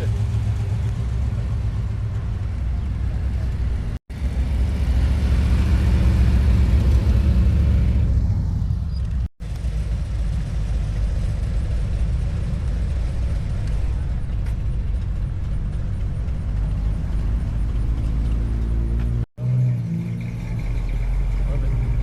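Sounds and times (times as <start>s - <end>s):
car engine idling: 0.0s - 4.5s.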